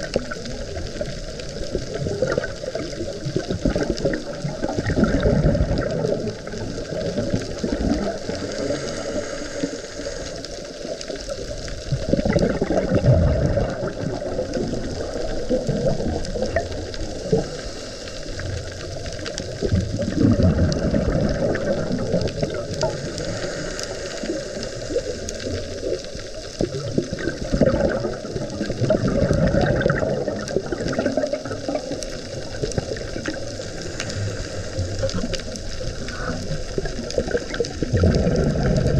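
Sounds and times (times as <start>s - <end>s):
faint clicks: 0.0s - 38.9s
underwater water rushing: 0.0s - 38.9s.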